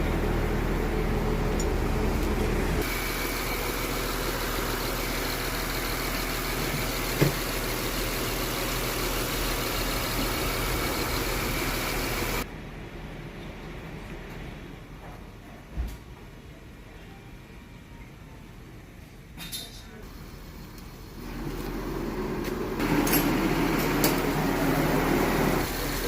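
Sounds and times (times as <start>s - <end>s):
car engine idling: 0.0s - 12.4s, 20.0s - 26.0s.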